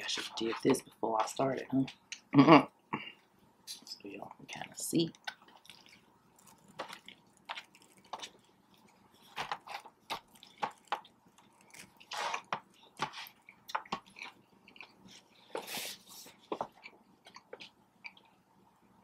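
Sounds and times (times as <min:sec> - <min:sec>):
person chewing and biting food: 0:05.2 - 0:18.4.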